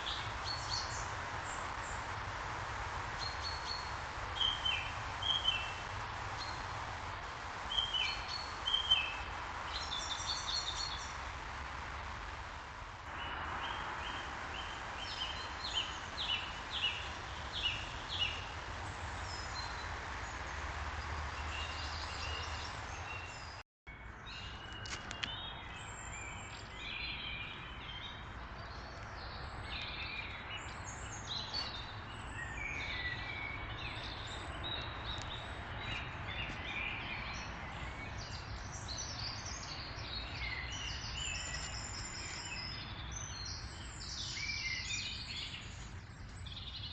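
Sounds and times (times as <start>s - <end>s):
outdoor background hiss: 0.0s - 46.9s
birds singing and chirping: 7.7s - 11.1s, 13.1s - 20.4s, 21.0s - 46.9s.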